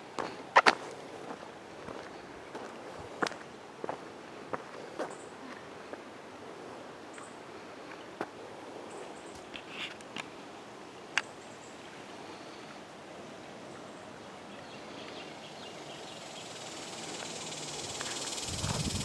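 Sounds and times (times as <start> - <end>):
high hiss: 15.7 - 19.0.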